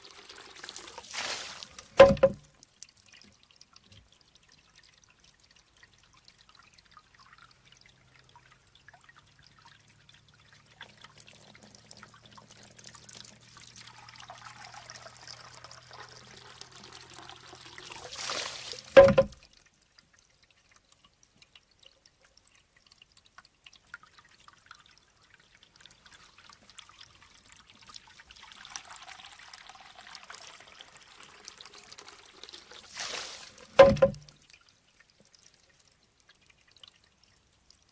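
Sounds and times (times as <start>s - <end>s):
water trickling into bamboo: 0.0s - 37.9s
bamboo knocking on stone: 2.0s - 2.4s, 19.0s - 19.4s, 33.8s - 34.3s.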